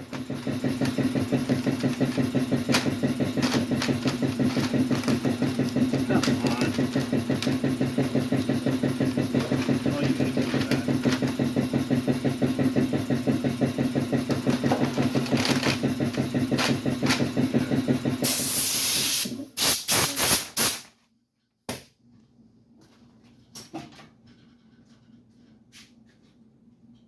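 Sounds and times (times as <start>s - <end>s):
compressed air hissing: 18.2s - 20.8s
short air blasts: 18.2s - 20.9s.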